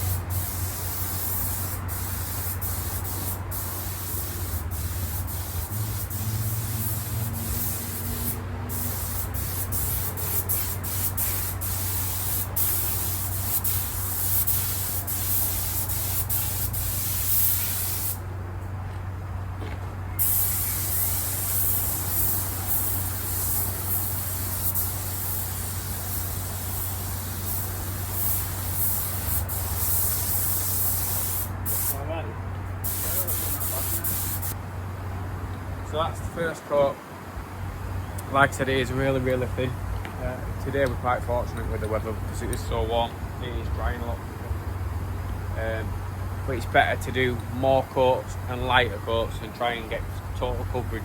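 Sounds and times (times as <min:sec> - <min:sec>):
spray gun hissing: 0:00.0 - 0:18.2, 0:20.2 - 0:32.0, 0:32.8 - 0:34.6.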